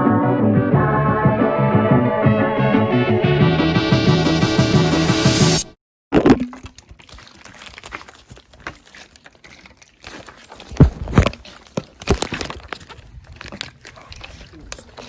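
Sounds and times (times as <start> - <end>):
rustling handling noises: 6.6 - 15.0.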